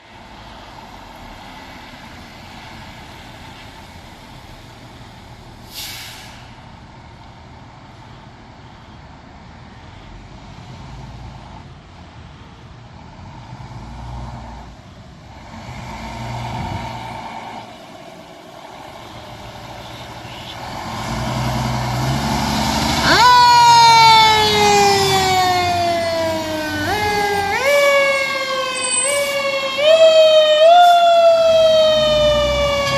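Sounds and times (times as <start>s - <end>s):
fire truck engine and road noise: 0.0s - 32.9s
air brake hiss: 5.6s - 6.7s
siren wailing: 22.8s - 32.9s.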